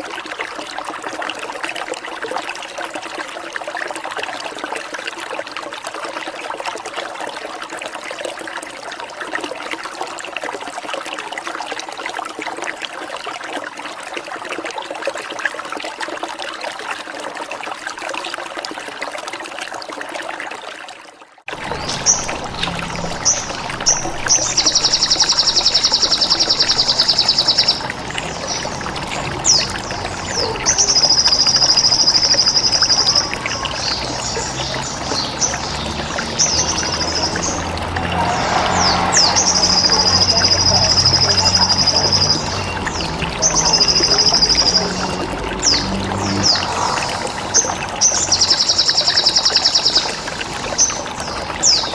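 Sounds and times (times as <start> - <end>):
water trickling: 0.0 - 51.9
high buzzing bird trills: 21.7 - 34.4
bird chirps: 21.7 - 37.6.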